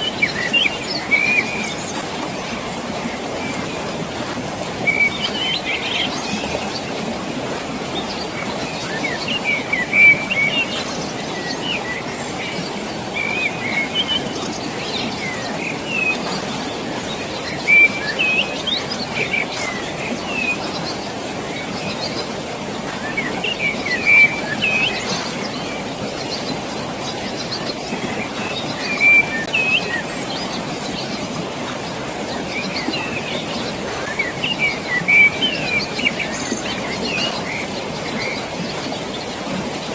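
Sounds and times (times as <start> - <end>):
rushing water: 0.0 - 39.9
small birds chirping: 4.5 - 39.9.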